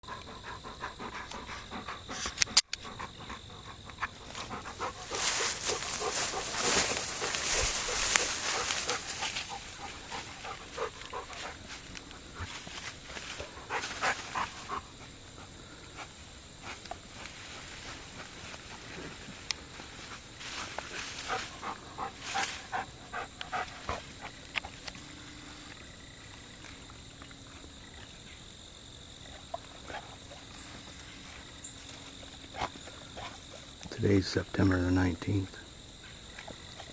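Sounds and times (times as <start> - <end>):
dog panting: 0.0 - 16.9, 20.6 - 24.8.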